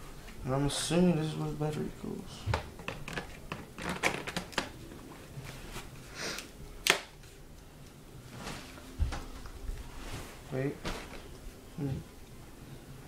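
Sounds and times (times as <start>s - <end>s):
rustling: 8.2s - 11.6s.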